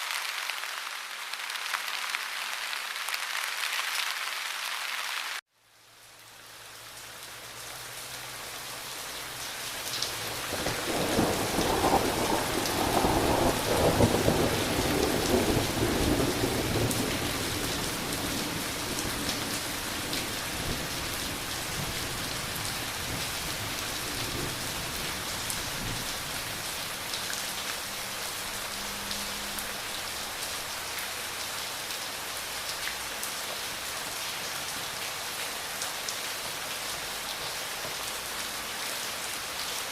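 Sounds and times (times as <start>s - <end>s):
heavy rain falling: 0.0s - 39.9s
deep rumble of thunder: 10.5s - 26.4s.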